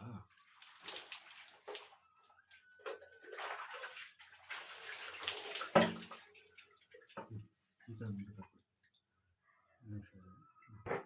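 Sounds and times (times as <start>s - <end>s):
water splashing over hair: 0.4s - 2.6s, 3.2s - 7.8s.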